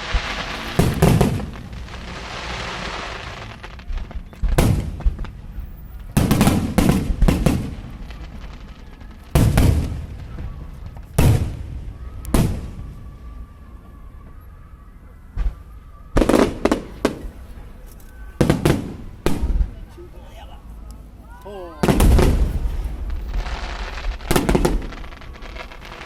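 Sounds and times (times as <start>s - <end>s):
firework shells booming: 0.0s - 13.1s, 18.4s - 19.9s, 21.8s - 26.0s
crackling firework stars: 0.0s - 26.0s.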